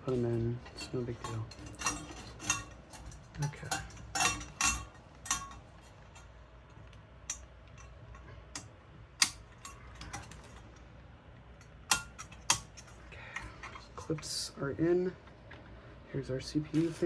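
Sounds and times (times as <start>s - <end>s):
metal fan clips snapping: 0.0s - 10.8s, 11.6s - 14.3s.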